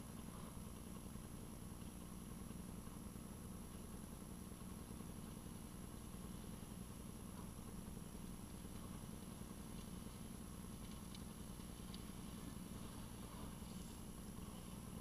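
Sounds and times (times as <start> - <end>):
faint engine idling hum: 0.0 - 15.0
light ticks: 10.7 - 12.2.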